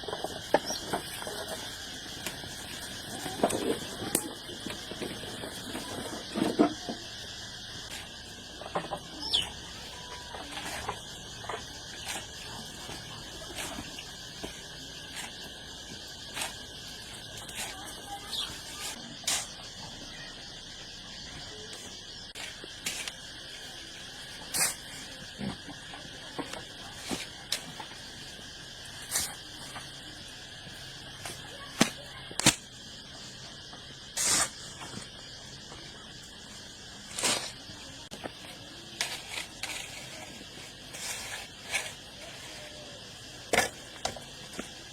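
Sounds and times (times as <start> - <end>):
steady high hiss: 0.0 - 44.9
bird chirps: 9.1 - 9.6
short hissing rustle: 34.0 - 35.2.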